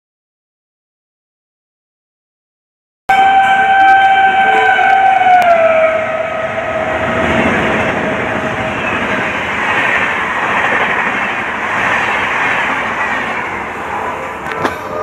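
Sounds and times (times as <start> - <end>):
locomotive horn: 3.1 - 9.4
train rushing past: 3.1 - 15.0.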